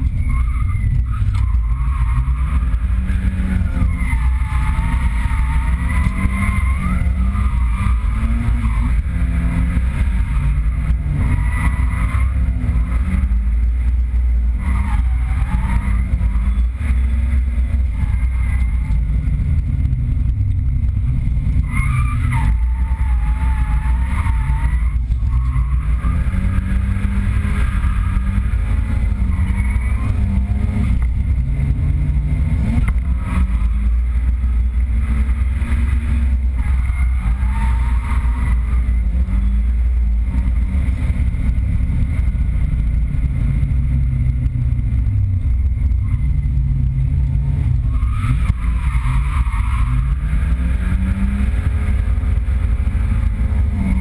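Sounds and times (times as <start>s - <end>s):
tyre squeals: 0.0s - 13.5s, 14.5s - 19.2s, 21.6s - 31.4s, 32.6s - 40.7s, 47.6s - 54.0s
car engine revving: 0.0s - 54.0s.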